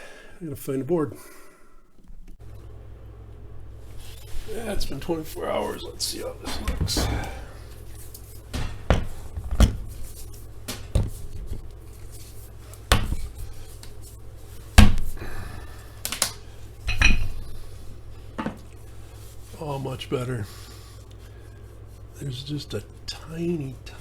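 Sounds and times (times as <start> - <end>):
weights knocking and clanking: 6.4 - 7.7, 8.4 - 11.6.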